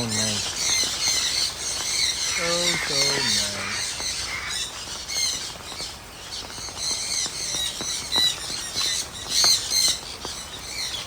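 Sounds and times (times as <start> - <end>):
birds chirping and squawking: 0.0 - 11.0.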